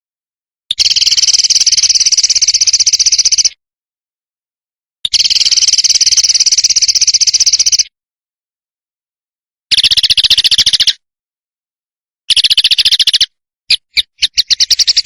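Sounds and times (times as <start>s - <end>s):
songbird rattling call: 0.7s - 3.6s, 5.1s - 7.9s, 9.7s - 11.0s, 12.3s - 15.0s.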